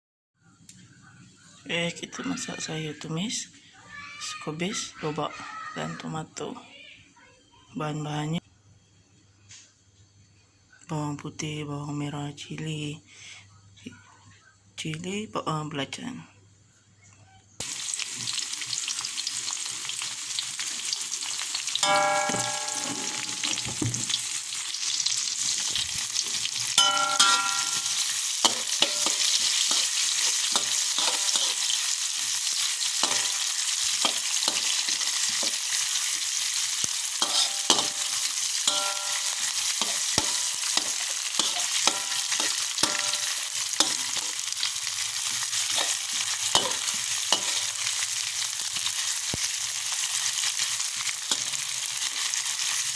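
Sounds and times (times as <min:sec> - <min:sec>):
food sizzling in oil: 0:17.6 - 0:52.9
spatula scraping metal pan: 0:20.8 - 0:48.9
pan ringing clangs: 0:21.8 - 0:24.1, 0:26.8 - 0:29.3, 0:33.0 - 0:33.4, 0:37.2 - 0:44.0.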